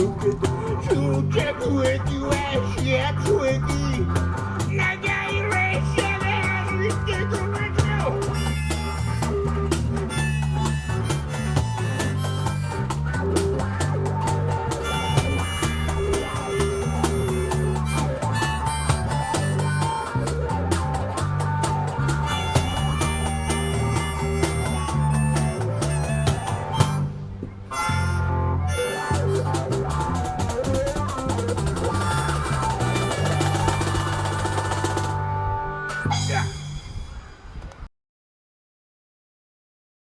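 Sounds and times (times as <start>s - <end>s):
lead melody: 0.0s - 36.1s
drum kit: 0.0s - 36.4s
repeating bass line: 0.0s - 36.6s
guitar: 0.0s - 37.2s.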